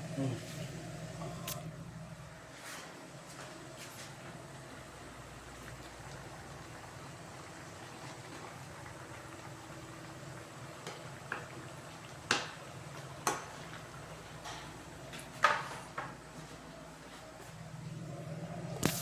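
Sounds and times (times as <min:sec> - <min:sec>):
steady low hum: 0:00.0 - 0:10.7, 0:16.2 - 0:19.0.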